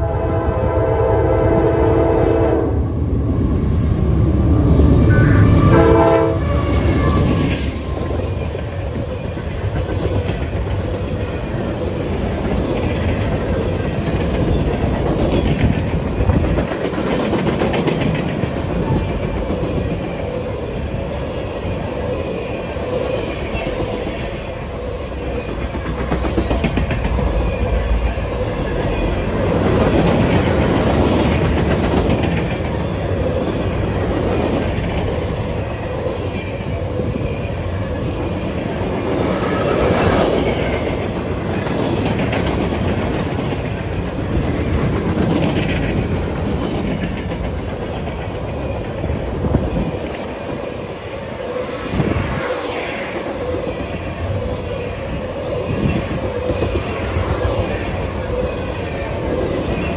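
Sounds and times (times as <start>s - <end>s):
freight train cars rumbling: 0.0s - 59.9s
wheels clacking over rail joints: 5.4s - 51.1s.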